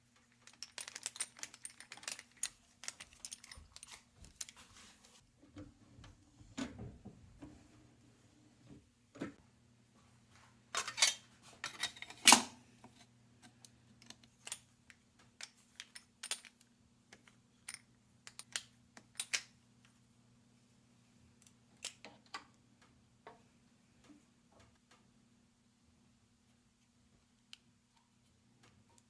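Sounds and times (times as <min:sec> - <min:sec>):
small hard parts clicking: 0:00.2 - 0:04.6.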